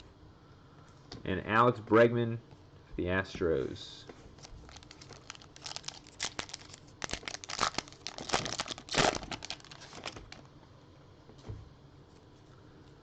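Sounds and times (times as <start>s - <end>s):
plastic wrapper crinkling and tearing: 4.4s - 10.5s.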